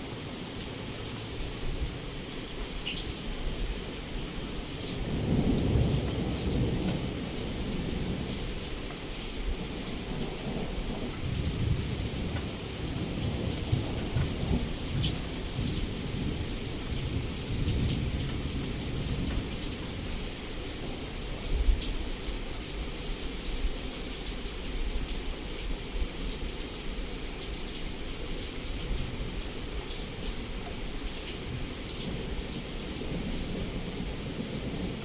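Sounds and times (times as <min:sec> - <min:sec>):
heavy rain against window: 0:00.0 - 0:35.0
raindrops ticking: 0:02.3 - 0:21.0
thunder rumbling: 0:04.9 - 0:20.1.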